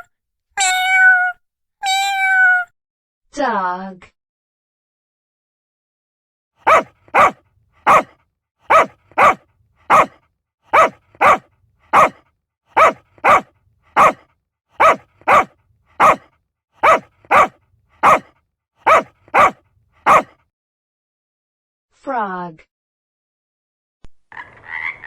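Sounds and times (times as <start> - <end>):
dog barking: 6.6 - 12.2, 12.8 - 14.2, 14.8 - 20.4.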